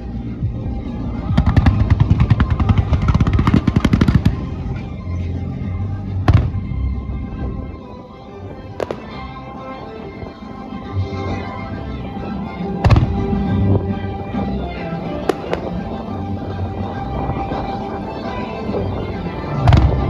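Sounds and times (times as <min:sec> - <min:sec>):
loud show music: 0:00.0 - 0:20.0
fireworks bursting: 0:01.0 - 0:04.9, 0:06.3 - 0:06.7, 0:08.5 - 0:09.4, 0:12.8 - 0:20.0.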